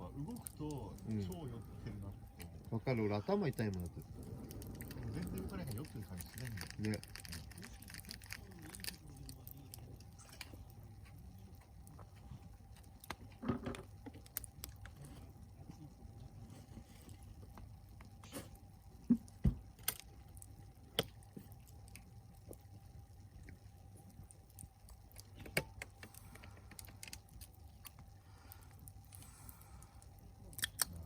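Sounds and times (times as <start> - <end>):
bonfire crackling and popping: 0.0 - 31.0.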